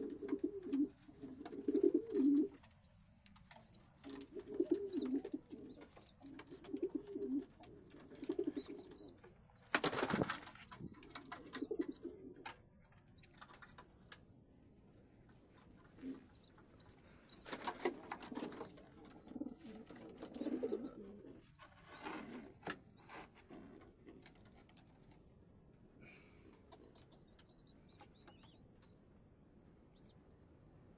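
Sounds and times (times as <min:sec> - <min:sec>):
pigeons cooing: 0:00.0 - 0:02.7, 0:03.6 - 0:12.5, 0:15.9 - 0:24.0
wing flapping: 0:09.6 - 0:11.9.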